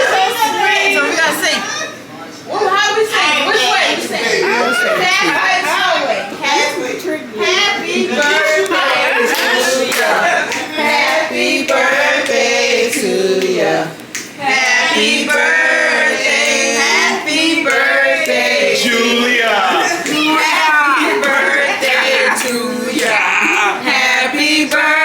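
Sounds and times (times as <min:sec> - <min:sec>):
group singing together: 0:07.4 - 0:25.0
hand clapping: 0:08.6 - 0:10.7, 0:12.2 - 0:14.4.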